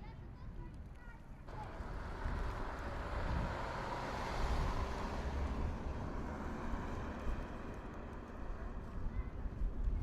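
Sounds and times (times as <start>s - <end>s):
car passing by: 1.7s - 8.8s.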